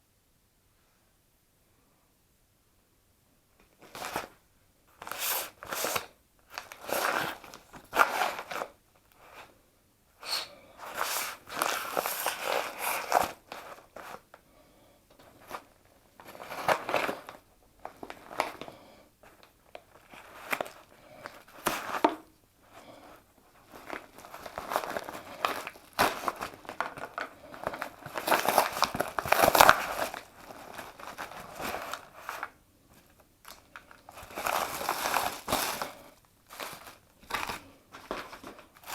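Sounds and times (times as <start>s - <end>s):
packaging crinkling and tearing: 5.0s - 9.5s, 10.2s - 14.2s, 15.4s - 22.1s, 23.6s - 38.9s.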